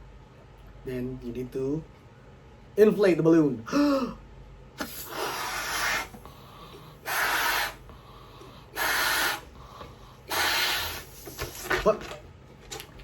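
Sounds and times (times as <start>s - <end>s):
breath puffs into balloon: 4.8s - 11.8s.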